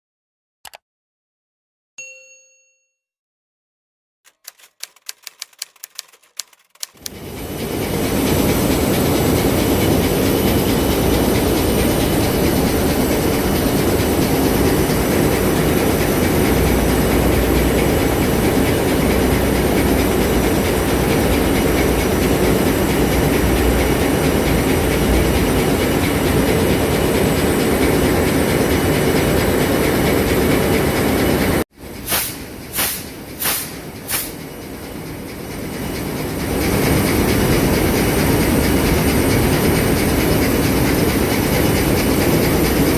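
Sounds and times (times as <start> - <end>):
diesel engine running: 7.0 - 42.9
short sharp bursts: 32.0 - 34.4.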